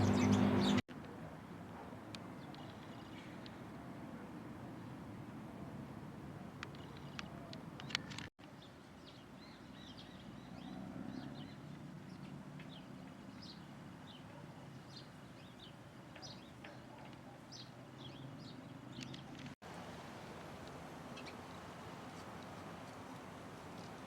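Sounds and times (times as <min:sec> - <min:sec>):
small birds chirping: 0:00.0 - 0:00.8, 0:06.6 - 0:19.6, 0:20.3 - 0:24.0.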